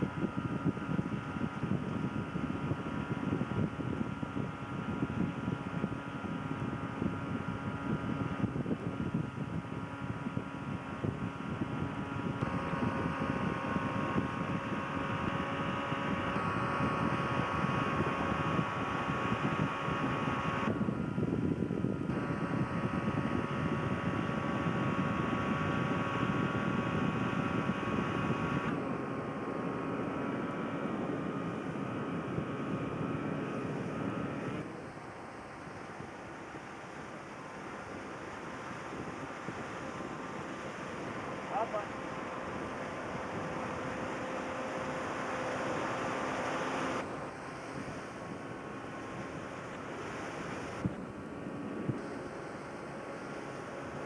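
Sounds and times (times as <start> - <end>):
boat motor running: 0.0 - 54.0
wind: 0.0 - 54.0
water noise: 28.8 - 54.0.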